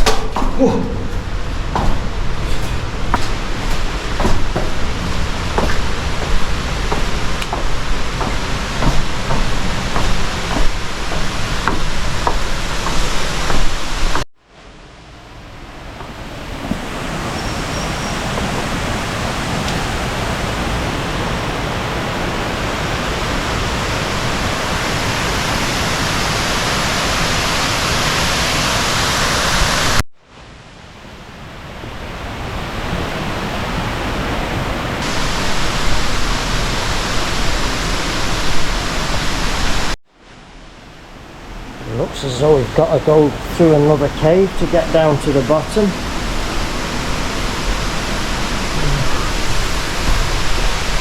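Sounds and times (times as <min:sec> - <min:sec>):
water rushing: 0:00.0 - 0:14.2, 0:32.6 - 0:40.0.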